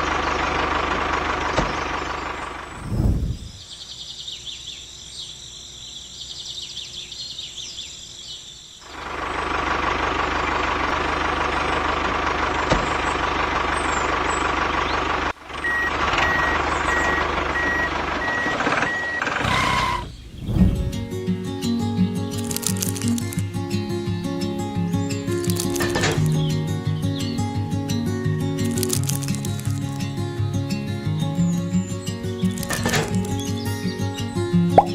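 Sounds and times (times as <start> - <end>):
vehicle engine running: 0.0 - 3.1, 8.8 - 20.1, 22.3 - 23.6, 24.7 - 34.9
reversing beeps: 15.6 - 20.0.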